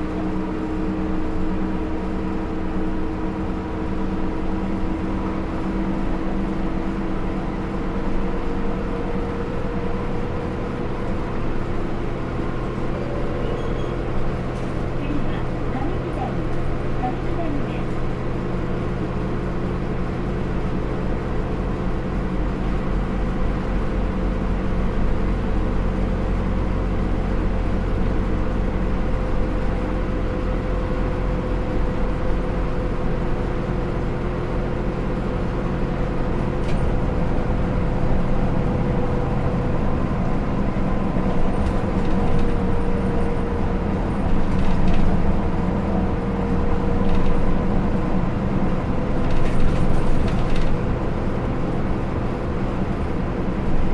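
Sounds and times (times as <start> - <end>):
bus engine hum: 0.0 - 53.9.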